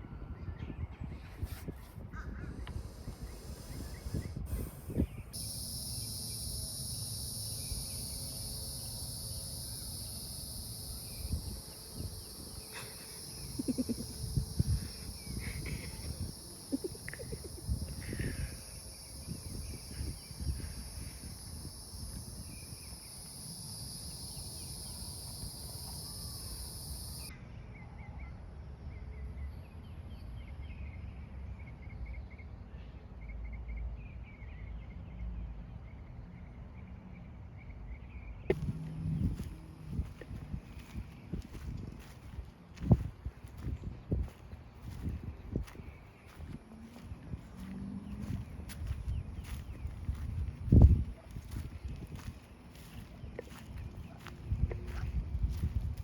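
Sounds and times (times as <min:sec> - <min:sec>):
faint bird chirps: 0:02.2 - 0:28.4
high-pitched insect chorus: 0:02.6 - 0:27.3, 0:38.5 - 0:56.0.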